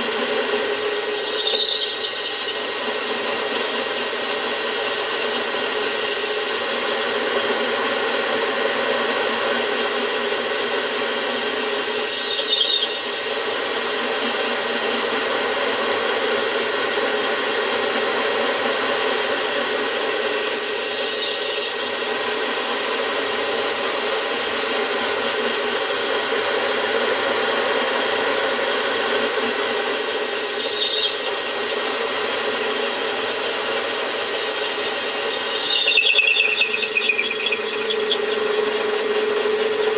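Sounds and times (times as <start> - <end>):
milling machine cutting metal: 0.0 - 39.9
thin motor whine: 0.0 - 39.9
brief squeal: 1.2 - 2.3, 12.2 - 13.0, 30.6 - 31.3, 35.3 - 38.5.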